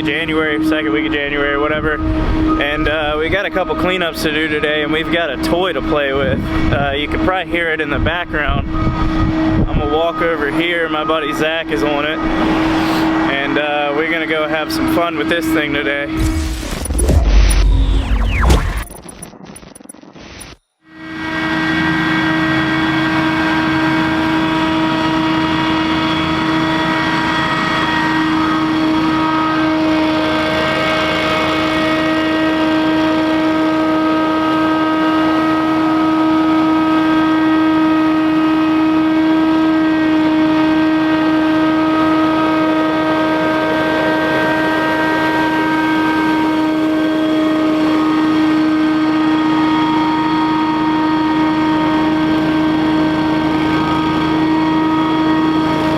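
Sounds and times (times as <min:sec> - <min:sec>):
debris blower droning: 0:00.0 - 0:19.4, 0:20.9 - 0:55.9.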